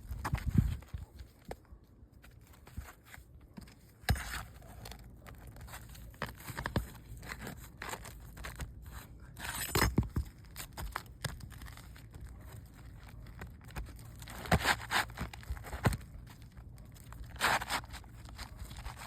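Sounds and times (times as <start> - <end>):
roofing shingles scraping and crinkling: 10.6 - 19.0.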